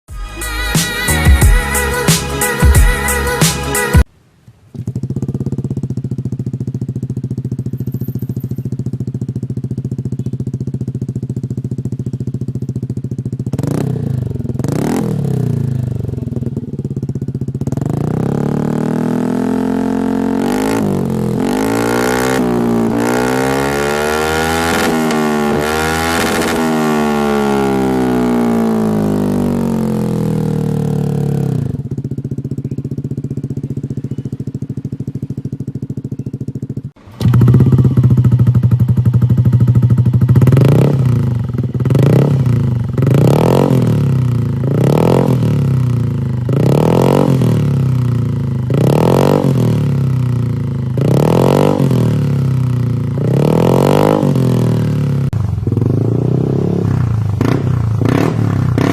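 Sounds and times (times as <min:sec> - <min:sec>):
scooter engine revving and idling: 0:04.7 - 0:58.9.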